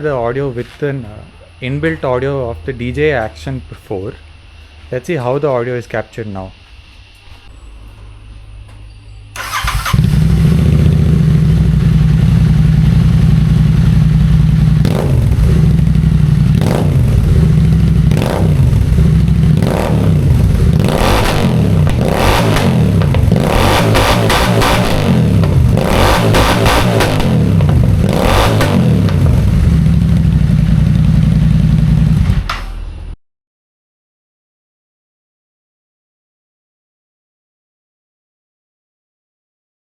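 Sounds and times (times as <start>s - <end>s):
motorcycle engine idling and revving: 9.4s - 33.2s.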